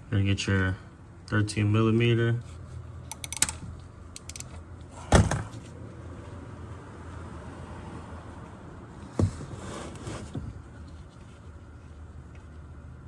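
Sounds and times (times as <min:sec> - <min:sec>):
light tool clicks: 0:04.2 - 0:04.6.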